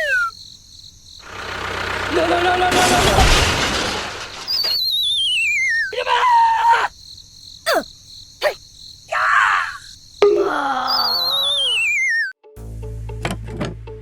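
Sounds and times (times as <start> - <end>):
cartoon voice cries and groans: 0.0 - 0.3, 5.7 - 6.9, 8.4 - 12.3
falling whistle: 0.0 - 0.3, 4.4 - 6.0, 10.8 - 12.4.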